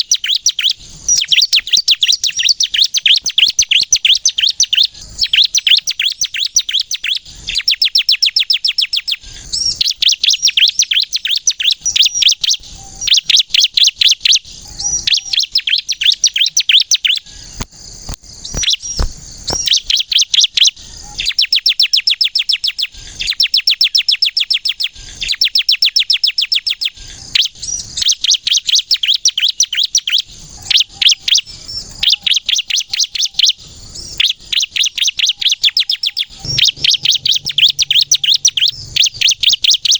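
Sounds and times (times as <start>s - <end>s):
bird singing high sharp notes: 36.0s - 39.9s.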